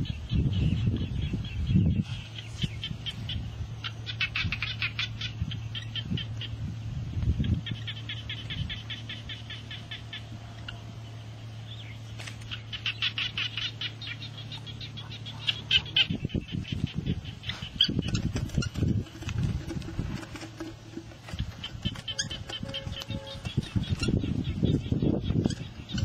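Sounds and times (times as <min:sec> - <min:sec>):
birds chirping: 0:00.0 - 0:26.0
low steady hum: 0:00.0 - 0:26.0
rustling: 0:17.5 - 0:24.0.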